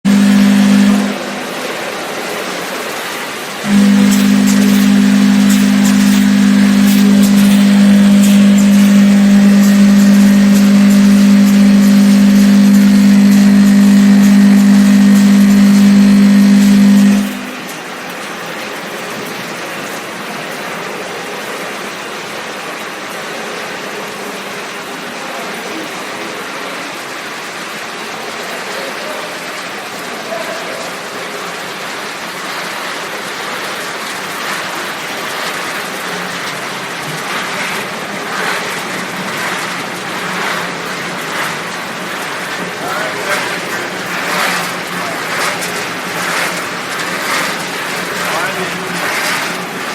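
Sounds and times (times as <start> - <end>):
loud low machine hum: 0.0 - 2.0, 3.6 - 18.2, 34.1 - 49.9
machinery whirring: 0.0 - 2.0, 3.6 - 18.2, 34.1 - 49.9.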